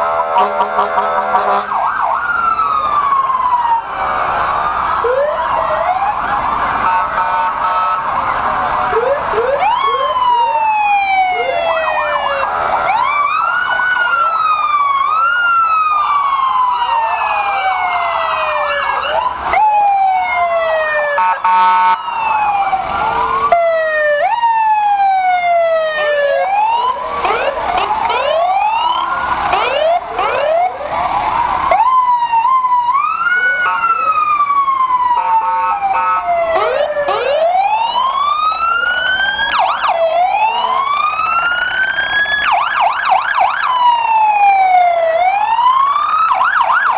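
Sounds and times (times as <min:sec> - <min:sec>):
emergency vehicle sirens wailing: 0:00.0 - 0:46.9.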